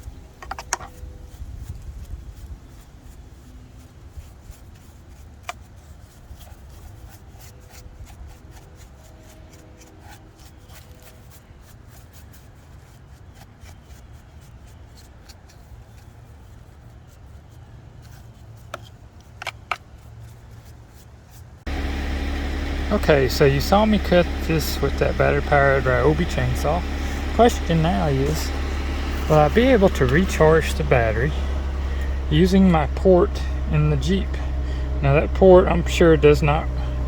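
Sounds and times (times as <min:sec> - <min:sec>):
steady low rumble: 0:21.6 - 0:37.0.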